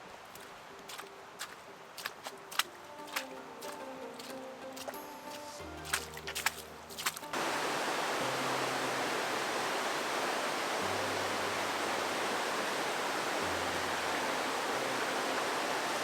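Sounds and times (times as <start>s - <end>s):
faint background music: 0.0s - 16.0s
waterfall rushing: 7.2s - 16.0s.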